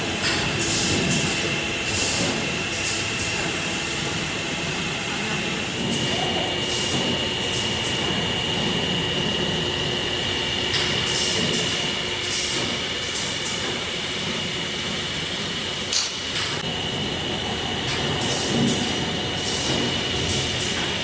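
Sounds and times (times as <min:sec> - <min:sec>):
machinery high whine: 0:00.0 - 0:12.2.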